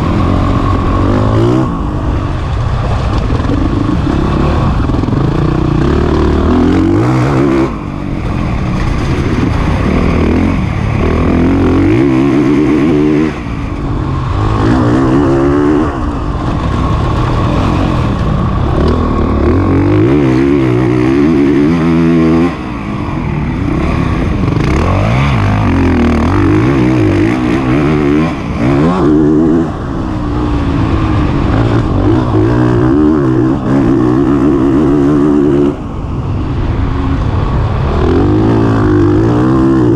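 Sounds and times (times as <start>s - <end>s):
motocross bike engine revving: 0.0s - 36.1s, 37.2s - 39.9s.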